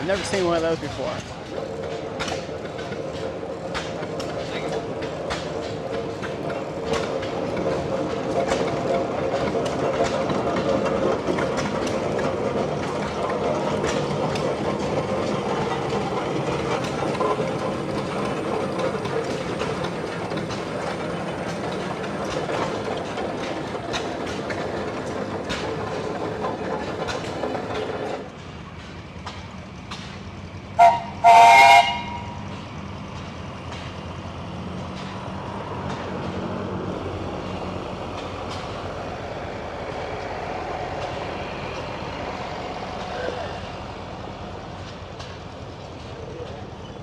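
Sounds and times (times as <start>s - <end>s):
machinery clicking: 0.1s - 28.3s
whistle blasts: 30.8s - 32.3s.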